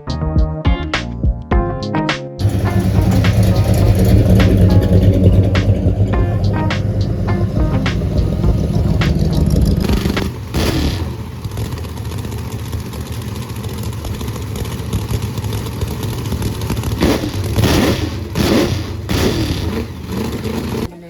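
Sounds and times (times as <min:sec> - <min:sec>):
short shifting pitch sounds: 0:02.4 - 0:11.3
vehicle engine running: 0:02.4 - 0:21.0.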